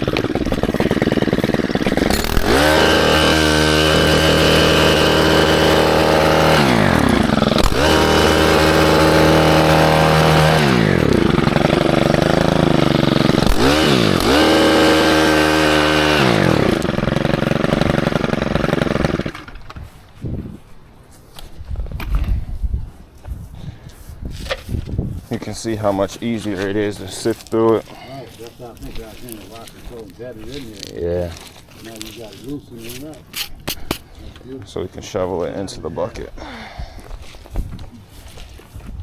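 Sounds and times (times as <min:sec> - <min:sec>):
garden tiller engine revving: 0:00.0 - 0:19.8.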